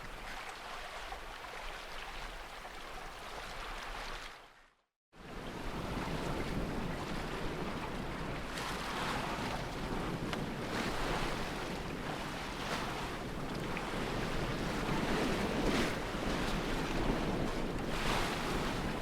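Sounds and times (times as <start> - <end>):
water washing against hull: 0.0 - 4.5, 5.2 - 19.0
wind on microphone: 5.2 - 19.0.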